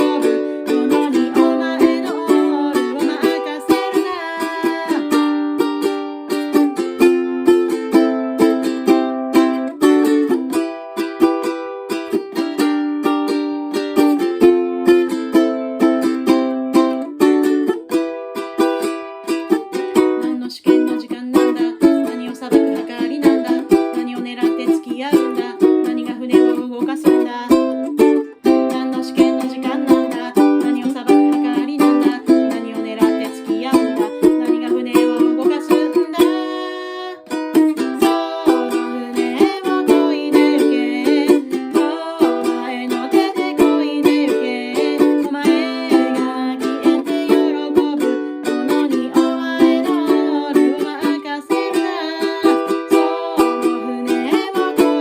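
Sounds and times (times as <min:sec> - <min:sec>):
ukulele strumming: 0:00.0 - 0:55.0.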